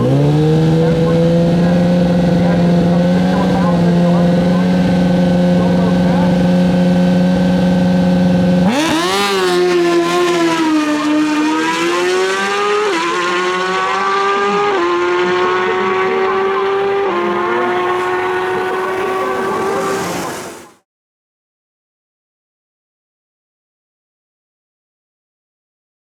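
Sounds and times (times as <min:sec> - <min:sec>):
motorcycle engine revving and upshifting: 0:00.0 - 0:20.7.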